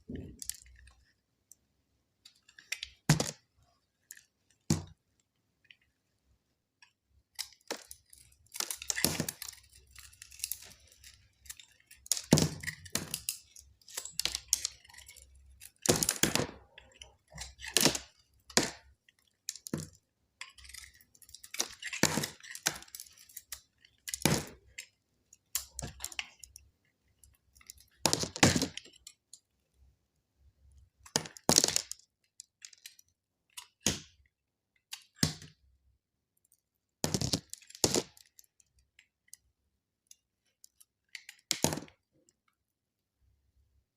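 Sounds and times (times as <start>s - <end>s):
knife cutting dry soap: 6.8s - 26.6s.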